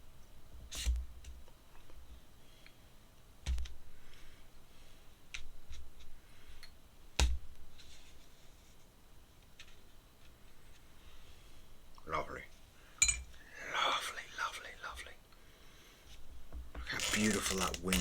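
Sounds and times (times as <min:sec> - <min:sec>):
pens clicking and knocking: 0:16.9 - 0:18.0.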